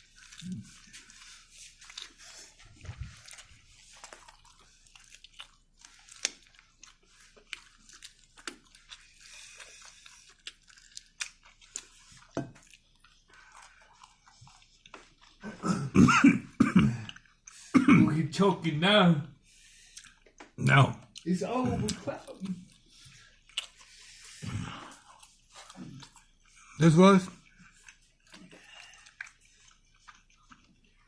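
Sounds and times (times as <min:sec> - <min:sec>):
chewing chicken wing: 0:00.0 - 0:17.8, 0:19.4 - 0:31.0
man coughing: 0:15.5 - 0:17.1, 0:17.7 - 0:18.3.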